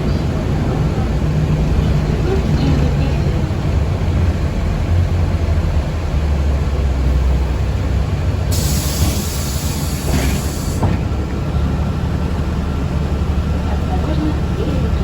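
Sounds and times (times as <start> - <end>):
bus interior rumble: 0.0 - 15.0
compressed air hiss: 8.5 - 10.8.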